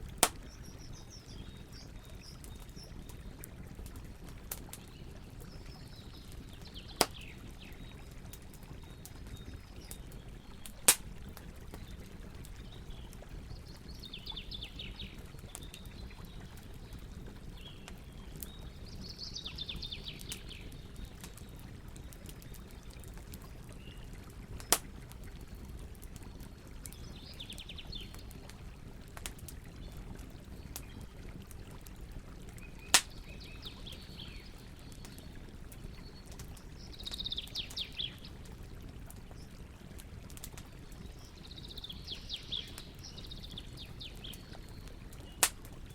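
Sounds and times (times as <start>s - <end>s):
campfire crackling: 0.0s - 45.9s
sharp fire pops: 0.2s - 0.8s, 7.0s - 7.3s, 10.8s - 11.1s, 24.6s - 24.9s, 32.9s - 33.2s, 45.3s - 45.8s
birds twittering: 0.3s - 3.4s, 32.6s - 35.2s, 35.9s - 38.3s, 40.9s - 45.9s.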